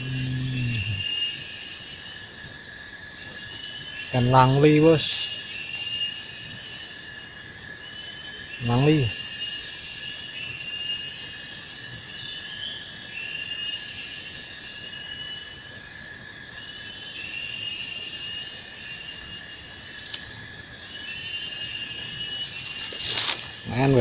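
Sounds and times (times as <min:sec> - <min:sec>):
insects buzzing: 0:00.0 - 0:24.0
shrill rising insect notes: 0:00.0 - 0:24.0.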